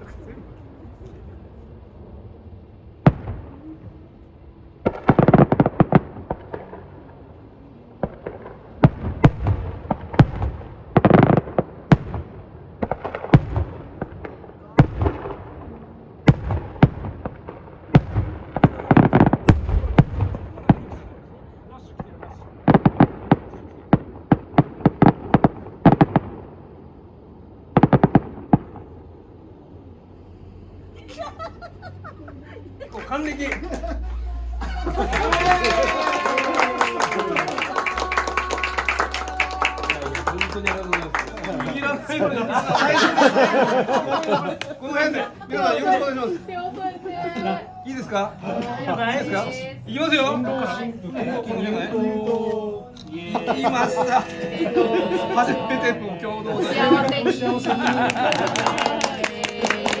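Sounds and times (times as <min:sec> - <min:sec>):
firework crackling: 0:00.0 - 0:30.8, 0:33.0 - 0:45.1
firework bangs: 0:02.8 - 0:04.0, 0:04.8 - 0:26.7, 0:27.7 - 0:29.4, 0:33.0 - 0:44.6.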